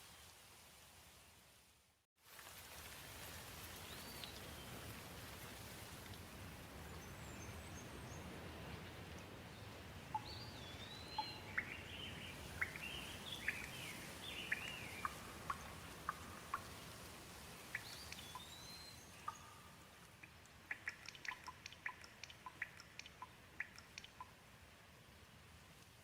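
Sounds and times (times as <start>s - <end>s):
gentle rain hiss: 0.0s - 26.0s
bird chirping and whistling: 17.8s - 19.5s.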